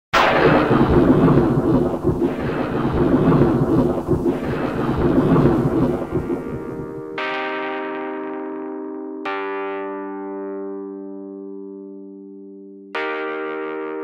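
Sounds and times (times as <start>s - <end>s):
rumbling thunder: 0.2s - 7.2s
rain: 0.3s - 7.1s.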